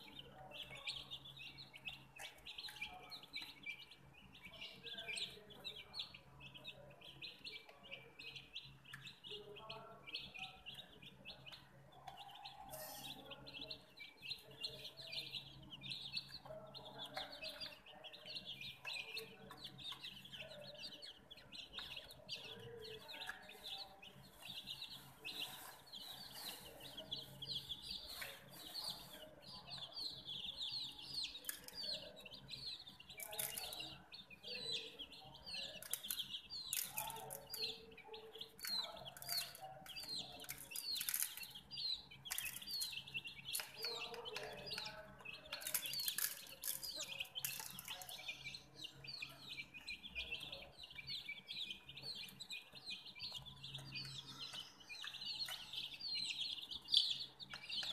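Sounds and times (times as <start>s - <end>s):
baby chicks peeping: 0.0s - 57.9s
sharp taps and scratches: 38.4s - 48.2s.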